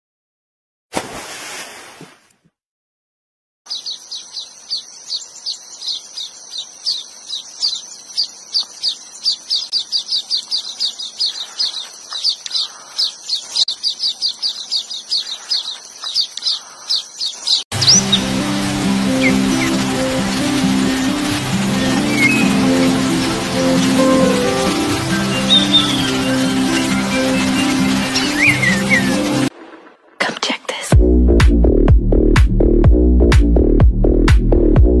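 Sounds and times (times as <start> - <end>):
bird chirping rapidly: 3.7 - 29.5.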